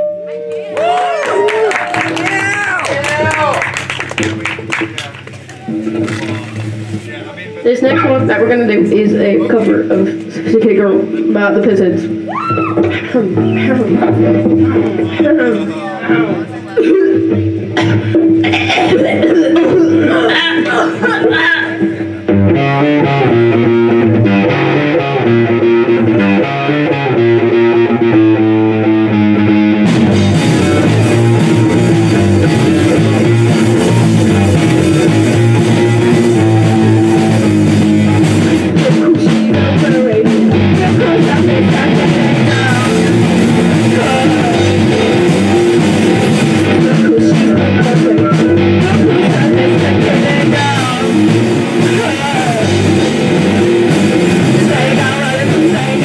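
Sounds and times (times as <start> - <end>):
live rock band playing: 0.7 - 56.0
picked guitar pattern: 1.9 - 56.0
drums with cymbals: 4.8 - 7.3, 29.9 - 56.0.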